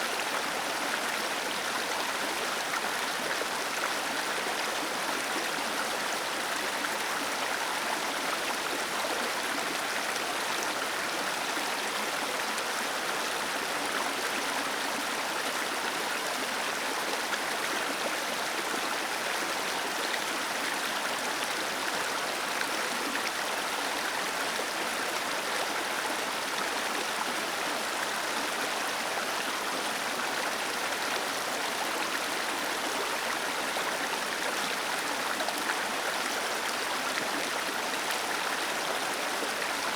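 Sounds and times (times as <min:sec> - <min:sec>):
small waterfall cascading: 0:00.0 - 0:39.9.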